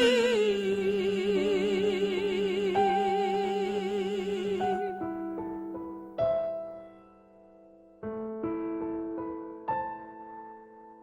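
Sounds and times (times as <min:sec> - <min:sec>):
person singing with vibrato: 0:00.0 - 0:05.6
piano chords: 0:00.0 - 0:11.0.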